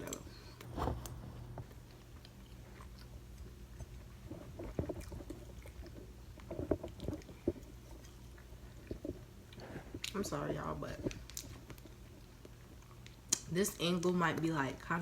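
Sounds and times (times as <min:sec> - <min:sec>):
person chewing food: 0:00.0 - 0:10.2, 0:11.1 - 0:13.5.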